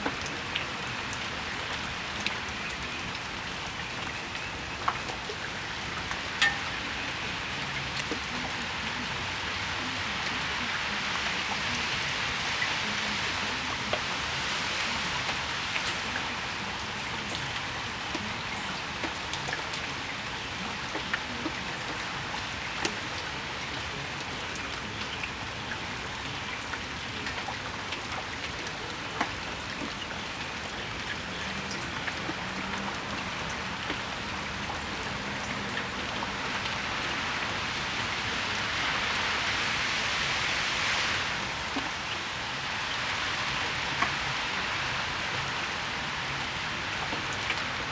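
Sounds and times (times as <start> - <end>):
steady rain: 0.0 - 47.9
broad hiss: 36.3 - 46.4.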